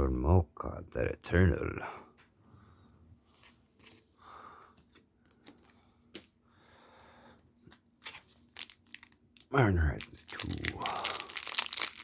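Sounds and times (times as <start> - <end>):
trading cards clicking and rustling: 10.0 - 12.0.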